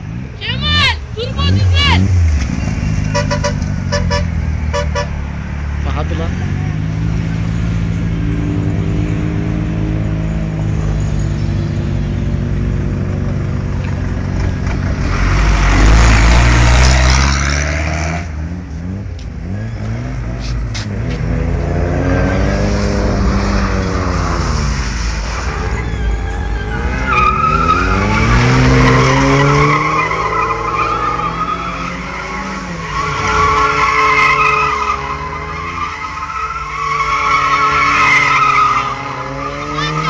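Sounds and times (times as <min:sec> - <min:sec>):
tyres skidding: 0:00.0 - 0:40.0
car engine revving hard: 0:15.0 - 0:25.1.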